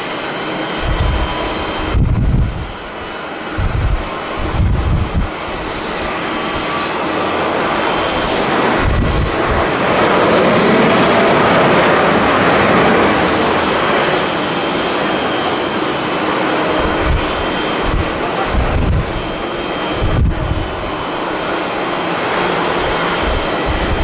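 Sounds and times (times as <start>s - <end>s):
jet engines roaring: 0.0s - 24.0s
wind gusts on microphone: 0.3s - 24.0s.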